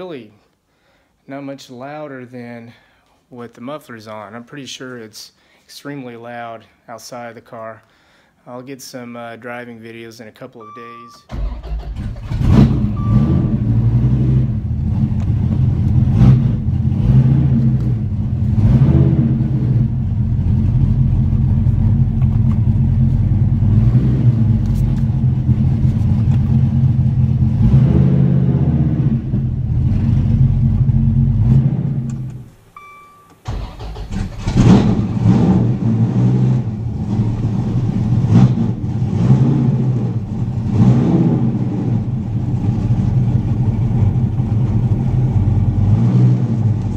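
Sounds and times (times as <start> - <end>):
short beep: 10.6 - 11.4, 12.9 - 13.6, 32.8 - 33.4
car engine revving loud: 12.2 - 22.0, 23.4 - 32.4, 34.4 - 43.9, 44.9 - 46.9.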